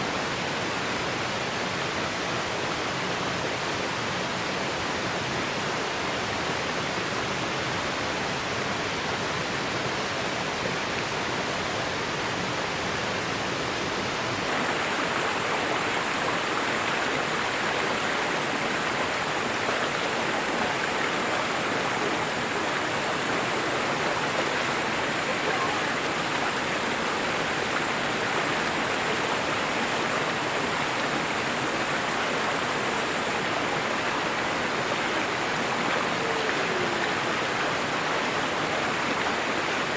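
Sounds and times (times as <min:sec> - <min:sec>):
river water rushing: 0:00.0 - 0:39.9
faint high steady tone: 0:20.3 - 0:27.2.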